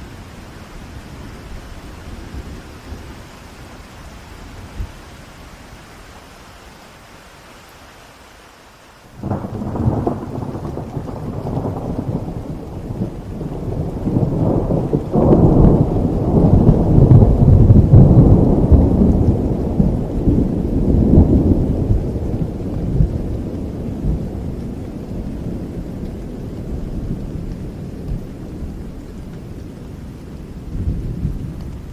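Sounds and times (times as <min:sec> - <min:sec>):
steady rain: 0:00.0 - 0:31.9
thunder cracking and rumbling: 0:09.2 - 0:31.9.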